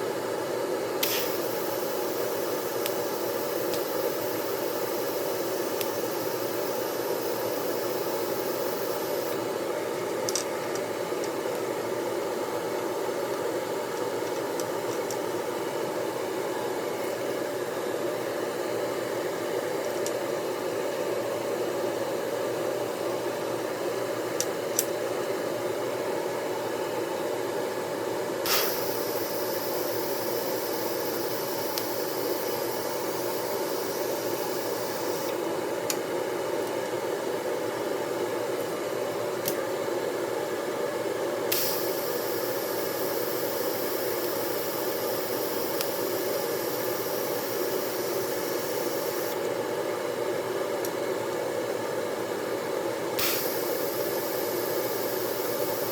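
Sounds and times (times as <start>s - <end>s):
steady hiss: 0.9s - 18.6s, 28.4s - 36.9s, 41.4s - 49.5s, 53.2s - 55.9s
welding arc crackling hiss: 1.0s - 9.6s, 28.4s - 35.5s, 41.5s - 49.5s, 53.2s - 55.9s.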